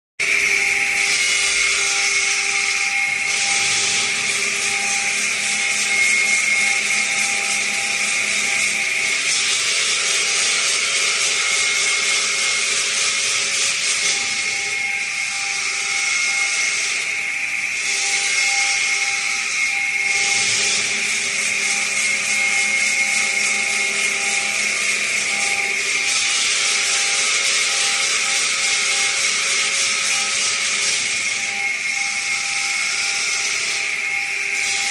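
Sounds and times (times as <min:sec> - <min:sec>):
stone grinding machine hiss: 0:00.2 - 0:34.9.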